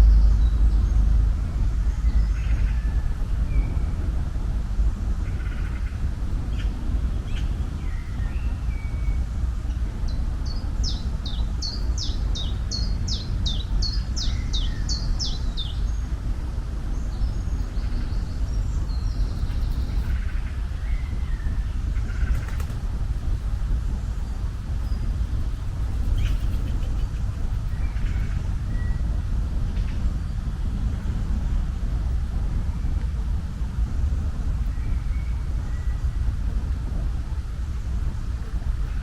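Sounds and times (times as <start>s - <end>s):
low rumble: 0.0s - 39.0s
songbird singing: 10.0s - 16.2s, 24.3s - 29.1s.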